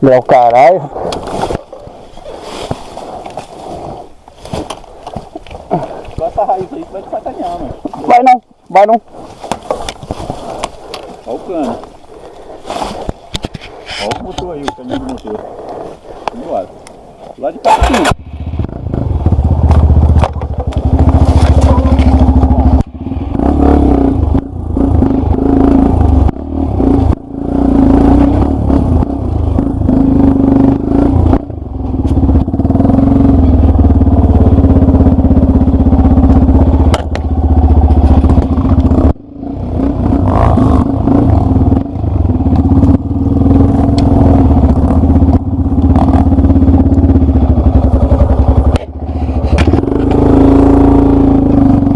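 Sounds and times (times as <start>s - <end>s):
dirt bike engine revving: 17.7s - 51.9s.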